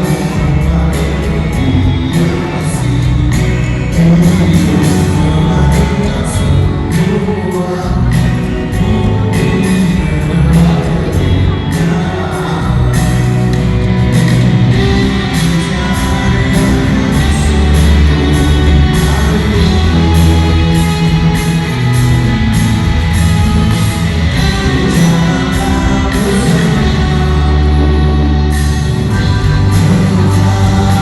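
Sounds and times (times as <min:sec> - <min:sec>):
live rock band playing: 0:00.0 - 0:31.0
cymbal beat: 0:12.9 - 0:31.0.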